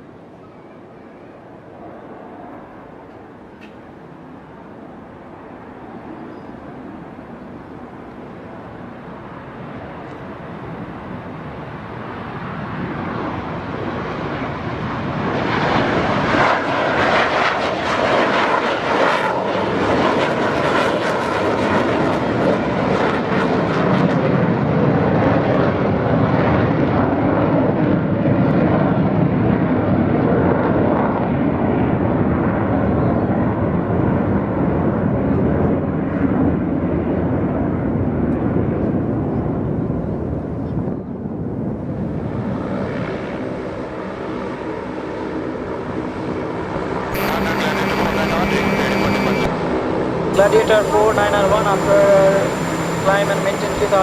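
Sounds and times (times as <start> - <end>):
jet engine roaring: 8.6 - 23.8, 41.6 - 54.0.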